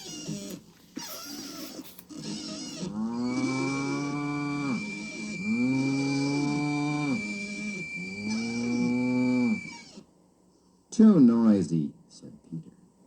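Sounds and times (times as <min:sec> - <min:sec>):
cow mooing: 0:02.7 - 0:09.6
tea kettle whistling: 0:03.2 - 0:10.0.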